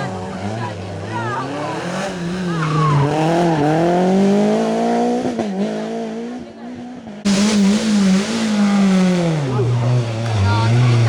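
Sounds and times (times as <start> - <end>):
rally car engine revving: 0.0 - 11.0
car passing close: 7.2 - 11.0.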